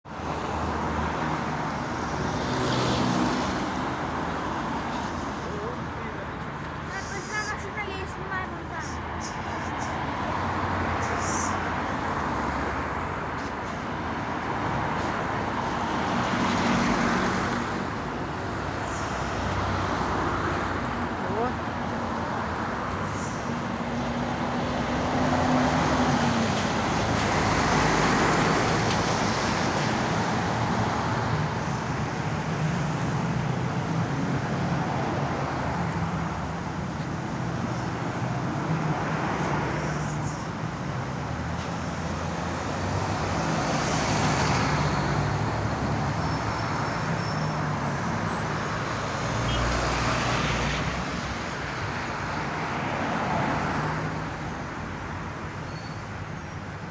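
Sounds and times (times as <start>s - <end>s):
passing vehicles rushing: 0.1s - 56.9s.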